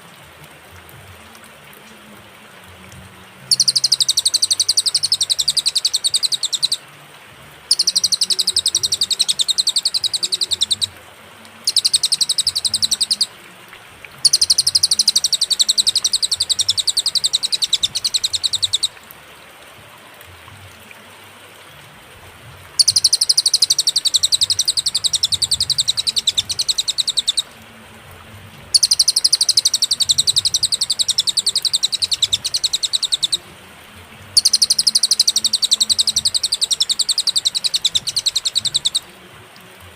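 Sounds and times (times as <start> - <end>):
songbird high rapid trills: 3.5 - 6.8, 7.7 - 11.0, 11.6 - 13.4, 14.2 - 19.0, 22.8 - 27.6, 28.7 - 33.5, 34.4 - 39.2.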